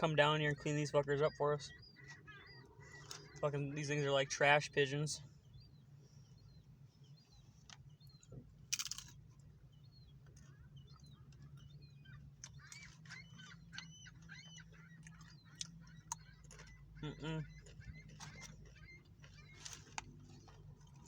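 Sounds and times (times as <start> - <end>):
birds chirping and squealing: 0.0 - 21.0
steady low hum: 0.0 - 21.0
crunching noise: 8.3 - 9.4.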